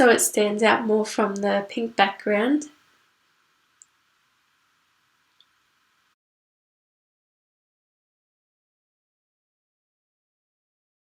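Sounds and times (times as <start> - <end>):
faint steady hiss: 0.0 - 6.2.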